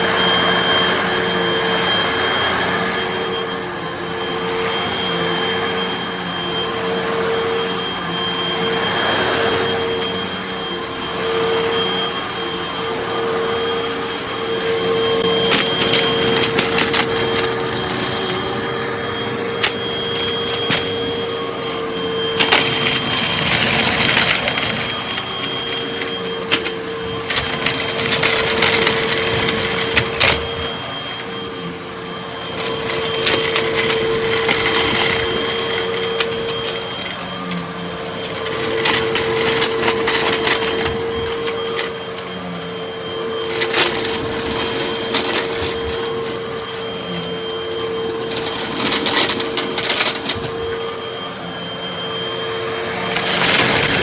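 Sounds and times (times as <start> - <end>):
vacuum cleaner motor hum: 0.0 - 54.0
debris crackling in vacuum: 53.1 - 54.0.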